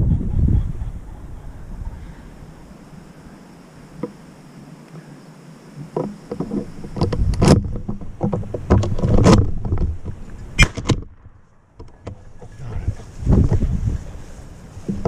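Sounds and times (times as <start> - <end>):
rustling and crackling: 5.7 - 15.0.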